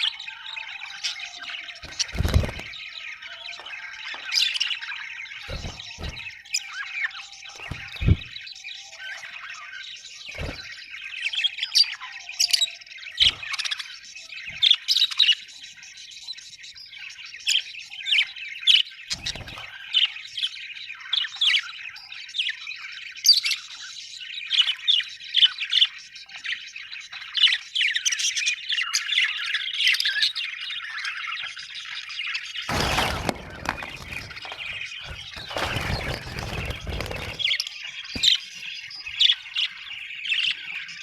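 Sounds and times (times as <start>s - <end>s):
budgerigars chirping and squawking: 0.0s - 41.0s.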